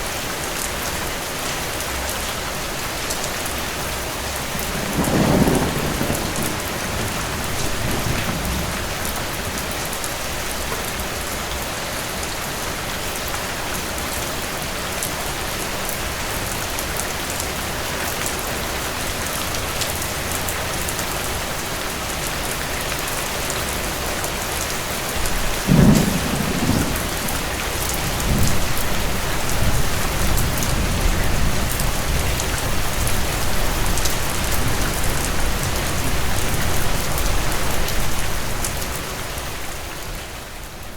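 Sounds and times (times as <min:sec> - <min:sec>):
steady rain: 0:00.0 - 0:40.9
thunder rumbling: 0:04.4 - 0:09.9, 0:25.2 - 0:38.8.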